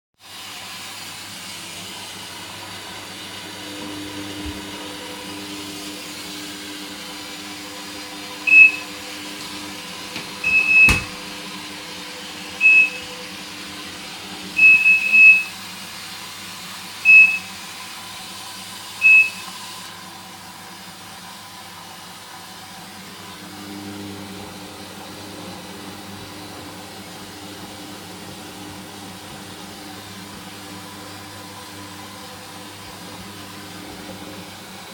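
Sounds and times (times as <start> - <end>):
washing machine low hum: 0.6 - 34.9
water hissing through fill valve: 14.6 - 19.9.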